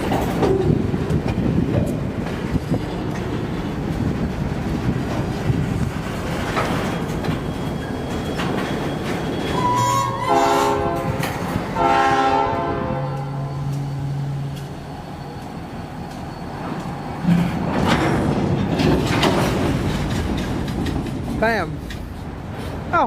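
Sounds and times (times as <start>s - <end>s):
freight train rolling by: 0.0s - 23.0s
locomotive air horn blasts: 9.6s - 13.7s.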